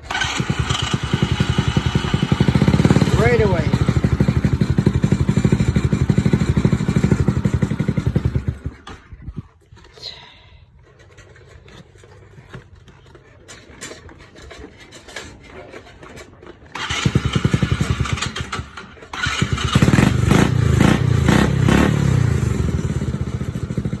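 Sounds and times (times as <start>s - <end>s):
starter motor cranking: 0.0s - 9.2s, 16.5s - 24.0s.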